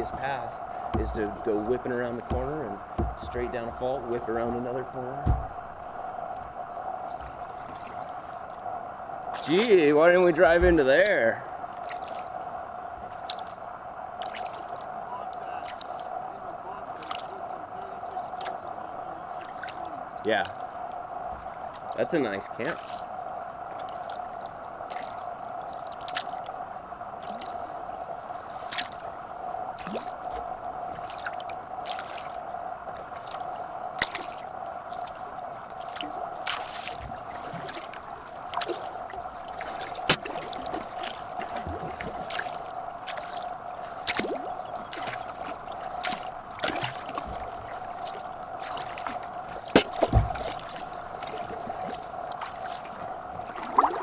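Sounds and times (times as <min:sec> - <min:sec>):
paddle splashing water: 0:00.0 - 0:54.0
steady hum: 0:00.0 - 0:54.0
low thumps: 0:00.8 - 0:04.0, 0:05.2 - 0:05.9, 0:10.5 - 0:10.9.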